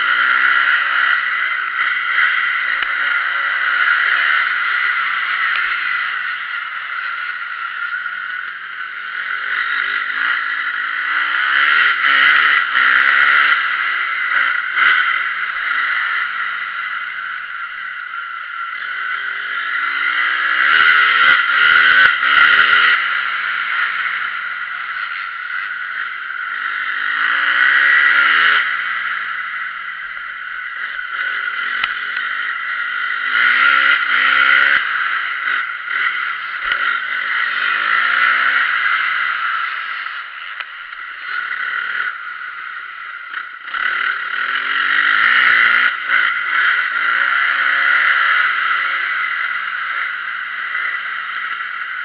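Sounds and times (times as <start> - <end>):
motocross engines revving: 0.0 - 52.0.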